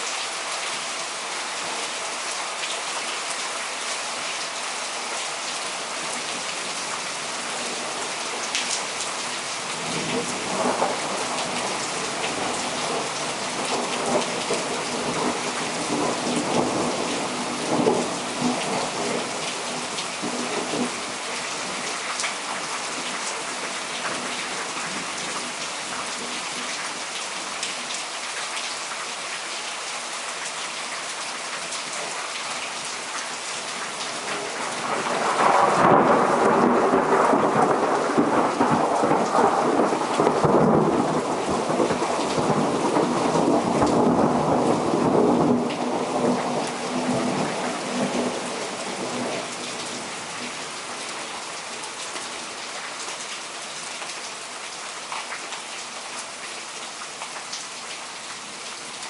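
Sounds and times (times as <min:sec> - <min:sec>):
heavy rain: 0:00.0 - 0:59.0
thunder rumbling: 0:34.8 - 0:49.3.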